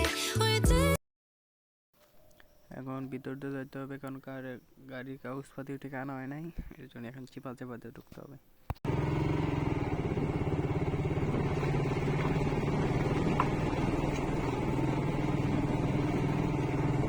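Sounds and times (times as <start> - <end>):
motorcycle engine running: 8.8 - 17.0.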